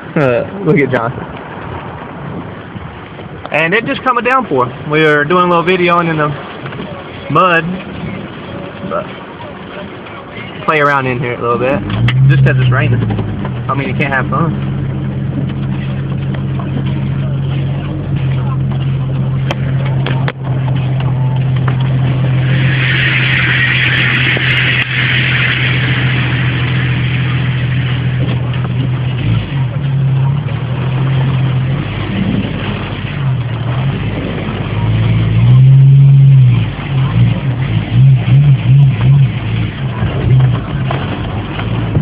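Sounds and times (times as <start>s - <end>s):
heavy rain: 0.0s - 42.0s
vehicle engine idling and revving: 0.0s - 42.0s
loud rushing hiss: 22.2s - 28.6s.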